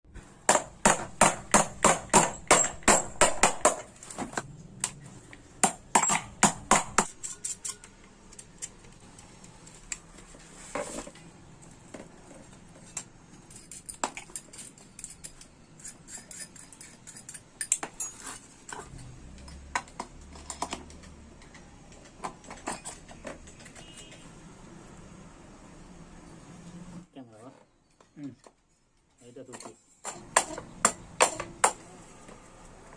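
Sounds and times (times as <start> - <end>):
sharp metallic knocks and clicks: 0.5 - 3.9, 5.6 - 8.8, 29.6 - 31.8.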